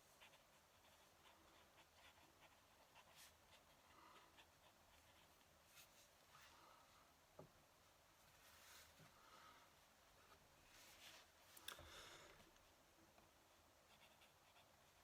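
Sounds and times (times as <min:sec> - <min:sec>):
pen nib scratching on paper: 0:00.1 - 0:05.9, 0:13.5 - 0:15.0.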